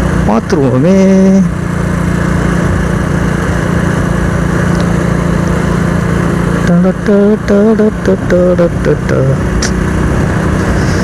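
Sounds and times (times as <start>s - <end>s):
motorcycle engine running: 0.0s - 11.0s
wind rush: 9.4s - 11.0s.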